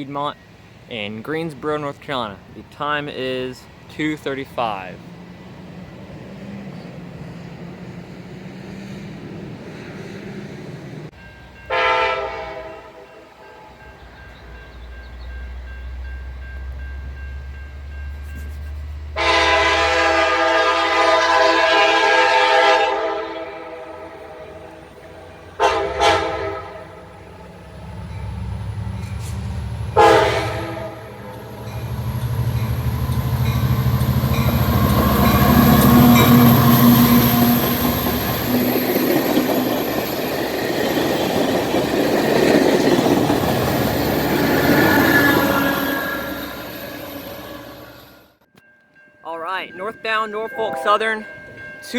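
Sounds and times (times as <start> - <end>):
train horn blasts: 11.7 - 13.8, 19.1 - 27.4, 29.2 - 31.9, 33.4 - 38.2
wheel and rail noise: 22.9 - 49.1.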